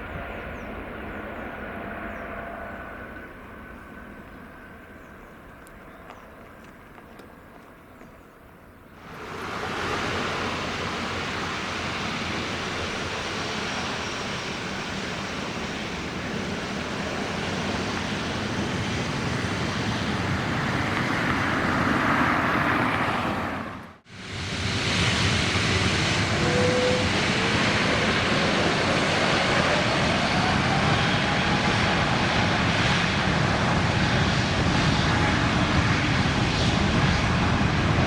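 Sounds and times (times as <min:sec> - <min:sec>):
jet engine roar: 0:00.0 - 0:07.8, 0:08.9 - 0:38.0.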